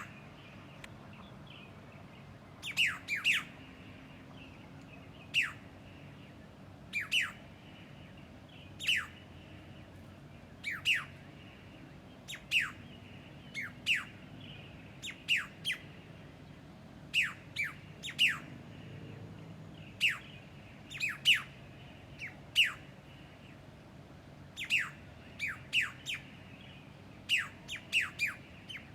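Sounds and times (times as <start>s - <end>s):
bird calling with sharp descending notes: 2.6s - 3.6s, 10.6s - 11.2s, 17.1s - 18.6s.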